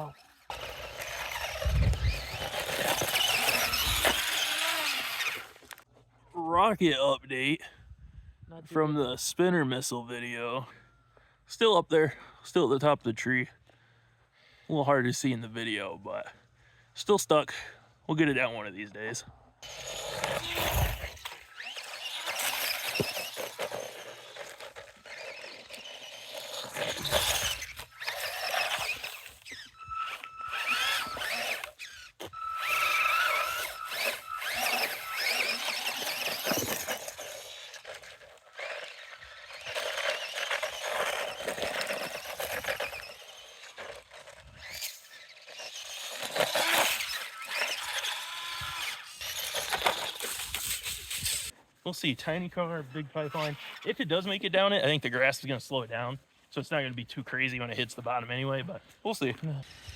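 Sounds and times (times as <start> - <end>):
electric motor and gears whining: 0.0 - 5.8, 19.6 - 51.5.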